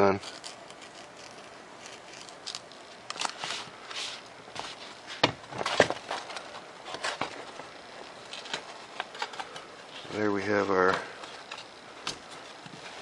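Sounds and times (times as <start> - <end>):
crackling scrapes and clicks: 0.1 - 4.1, 5.6 - 10.2.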